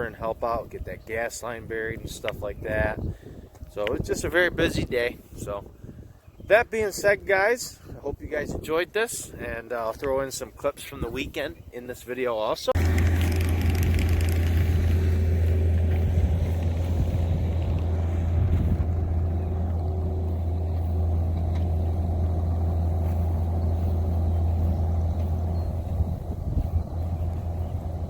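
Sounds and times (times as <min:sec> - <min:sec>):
engine rumbling: 0:12.7 - 0:28.0.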